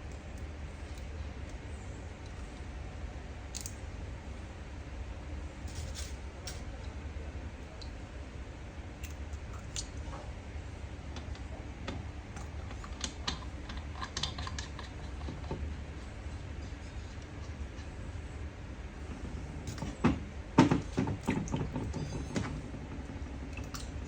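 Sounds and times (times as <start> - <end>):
small parts clicking and tapping: 3.5 - 3.8.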